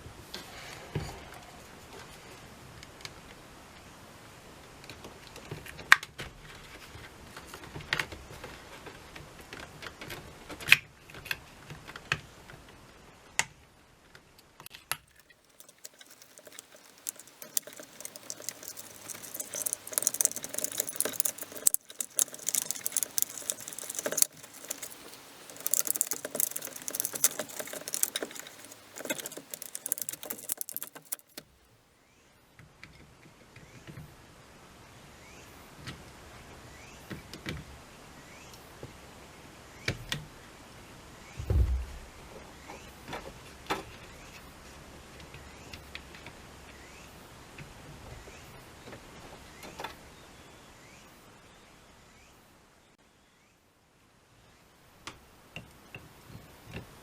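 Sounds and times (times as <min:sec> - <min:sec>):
small hard parts clicking and knocking: 0:14.9 - 0:31.6
parts clattering and rustling: 0:15.1 - 0:31.5.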